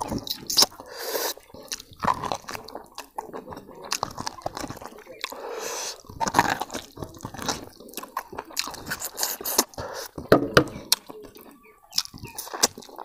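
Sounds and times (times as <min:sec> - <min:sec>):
person chewing meat: 0:00.0 - 0:13.0
wet lip smacks and clicks: 0:00.0 - 0:13.0.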